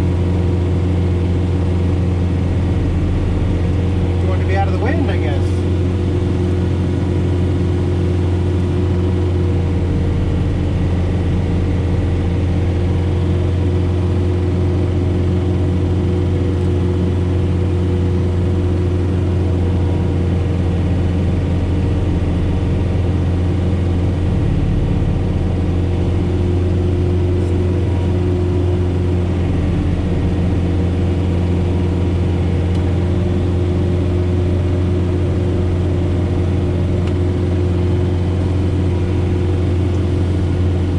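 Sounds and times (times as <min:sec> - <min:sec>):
tractor diesel engine droning: 0:00.0 - 0:40.9.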